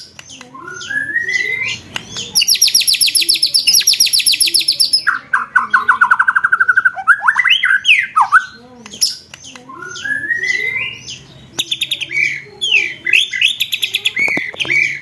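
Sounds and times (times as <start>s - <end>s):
songbird rapid trill: 0.6s - 9.2s.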